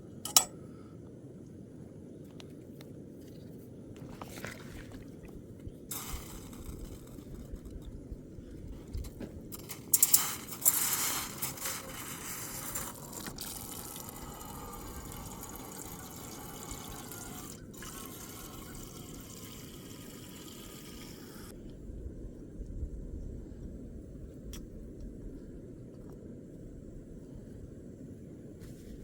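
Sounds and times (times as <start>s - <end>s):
water splashing and trickling: 4.0s - 21.5s.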